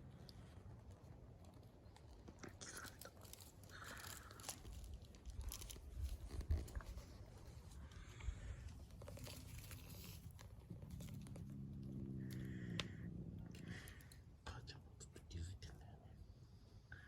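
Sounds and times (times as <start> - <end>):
faint crunching and rustling: 0.0 - 14.6.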